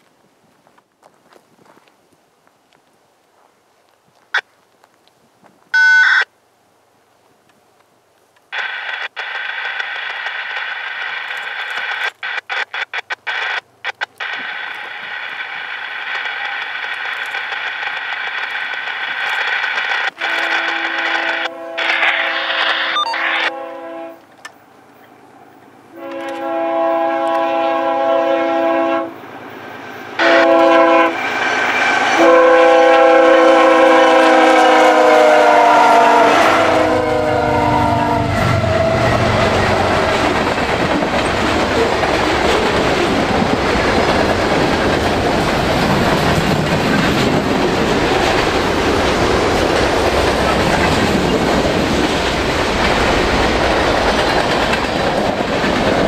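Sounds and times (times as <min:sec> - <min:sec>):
locomotive horn blasts: 0:20.1 - 0:24.2, 0:26.0 - 0:29.2, 0:30.2 - 0:31.2, 0:32.2 - 0:39.3
freight cars rumbling on rails: 0:36.2 - 0:56.0.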